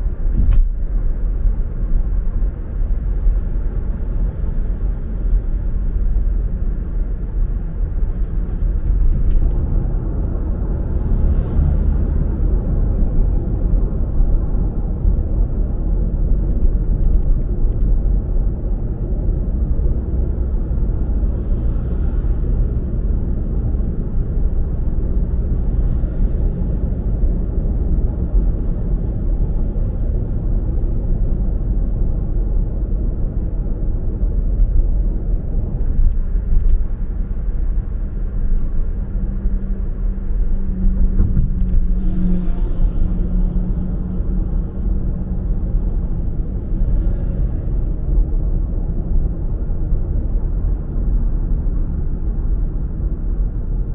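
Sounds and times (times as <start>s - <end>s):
car driving road and engine noise: 0.0s - 53.9s
low hum: 1.3s - 53.9s
passing traffic swooshes: 9.1s - 15.0s, 20.9s - 31.8s, 36.2s - 50.5s.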